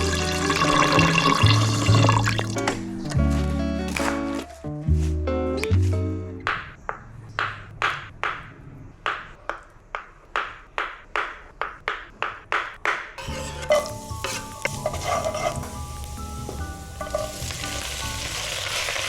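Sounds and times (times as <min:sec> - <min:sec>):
food sizzling in a pan: 0:00.0 - 0:02.4, 0:13.2 - 0:19.0.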